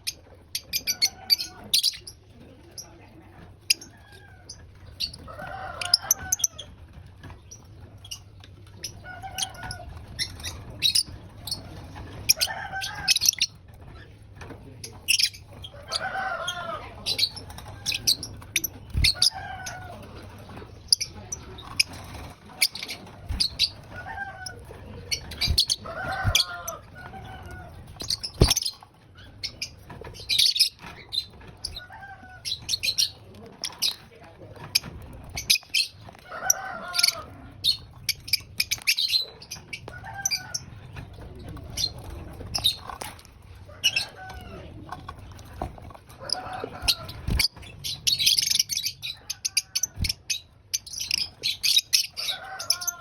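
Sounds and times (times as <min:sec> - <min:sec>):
lovebirds chirping: 0:15.0 - 0:34.0, 0:46.2 - 0:53.0.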